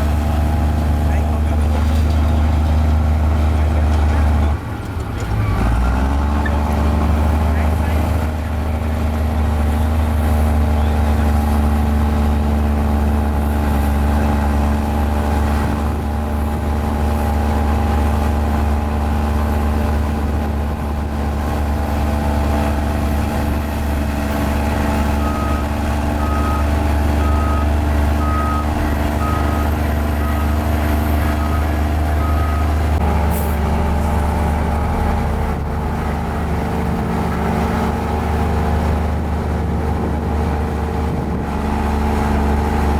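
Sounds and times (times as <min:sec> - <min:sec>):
bulldozer diesel engine running: 0:00.0 - 0:42.9
reversing alarm beeping: 0:25.0 - 0:32.8.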